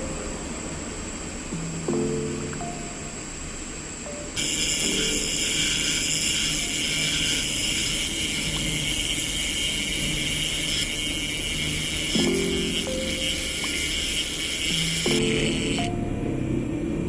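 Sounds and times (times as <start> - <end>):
hot air blower hissing: 4.4 - 17.0.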